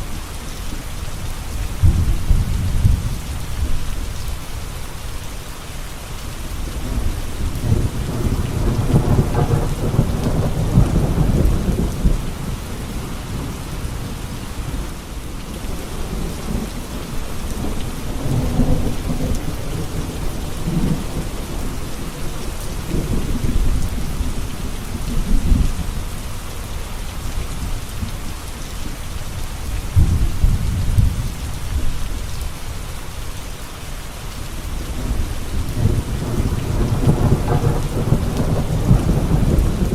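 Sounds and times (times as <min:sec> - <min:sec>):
heavy rain: 0:00.0 - 0:39.9
thunder rumbling: 0:01.7 - 0:03.8, 0:06.8 - 0:26.0, 0:29.8 - 0:32.2, 0:34.7 - 0:39.9.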